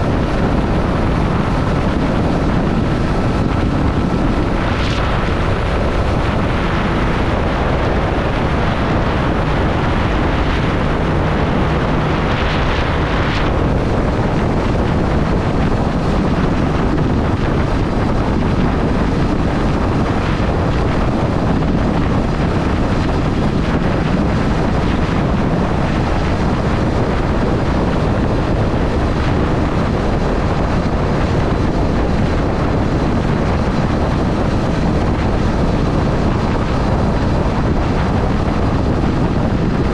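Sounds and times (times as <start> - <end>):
wind rush on microphone: 0.0 - 39.9.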